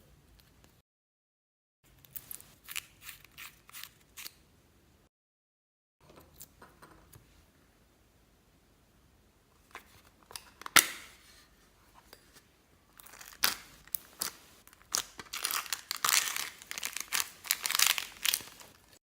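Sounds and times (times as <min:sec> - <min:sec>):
slime crackling and popping: 0:14.6 - 0:19.0.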